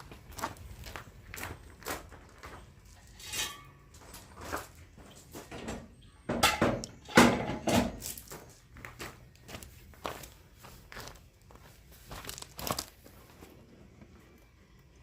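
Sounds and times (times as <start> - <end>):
metal tools clinking and clunking: 2.9 - 4.4, 5.2 - 8.3.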